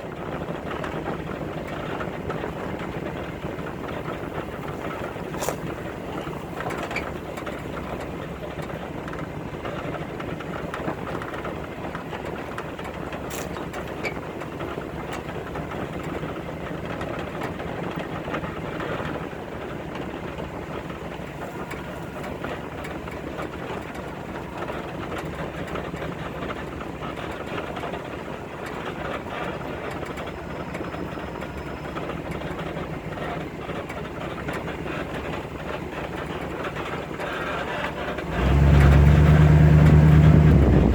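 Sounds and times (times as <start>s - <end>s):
vehicle engine running: 0.0s - 40.9s
vehicle knocks and rattles: 0.0s - 40.9s.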